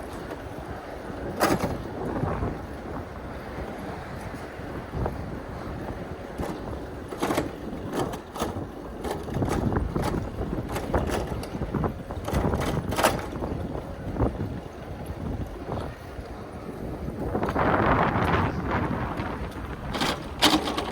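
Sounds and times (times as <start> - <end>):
bicycle clattering knocks: 0.0 - 2.9, 6.1 - 16.0, 17.2 - 20.9
wind rumbling on microphone: 0.0 - 20.9.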